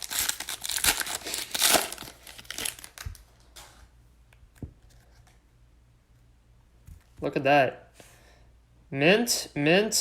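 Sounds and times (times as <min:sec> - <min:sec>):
plastic wrapping crinkling and tearing: 0:00.0 - 0:03.7.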